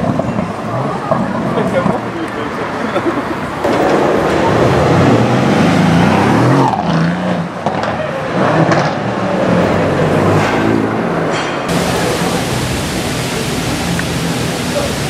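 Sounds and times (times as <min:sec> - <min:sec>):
car engine accelerating: 0:03.7 - 0:15.0.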